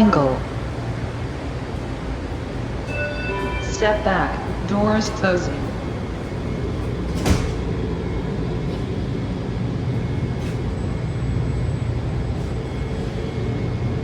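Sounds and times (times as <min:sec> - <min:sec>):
train rumbling: 0:00.0 - 0:14.0
train doors thumping shut: 0:04.8 - 0:09.2.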